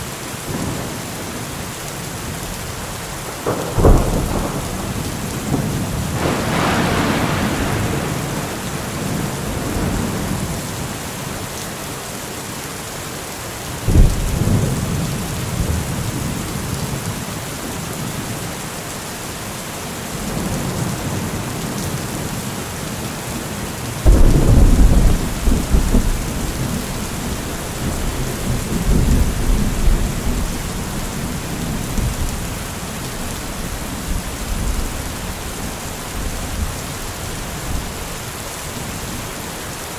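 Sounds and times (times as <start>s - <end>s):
heavy rain: 0.0s - 39.9s
thunder rolling and cracking: 3.3s - 10.9s, 13.9s - 17.0s, 24.0s - 36.8s.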